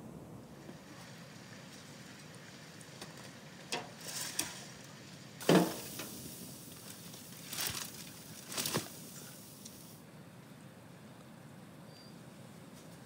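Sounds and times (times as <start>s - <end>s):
dry branches rustling and snapping: 1.6s - 9.9s
branches crashing down: 1.7s - 9.8s
crackling snaps: 1.7s - 10.0s.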